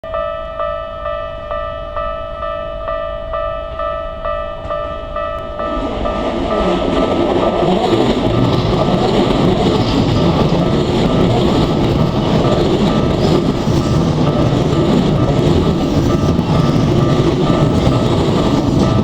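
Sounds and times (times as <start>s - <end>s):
crossing warning bell ringing: 0.0s - 19.0s
electric train rushing past: 0.1s - 19.0s.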